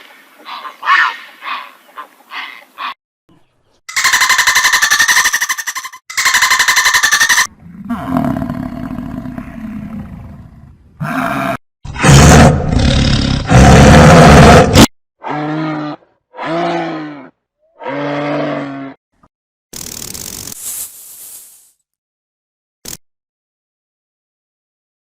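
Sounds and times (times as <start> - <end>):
animal calls: 3.9 - 7.5
animal roars: 7.5 - 19.0.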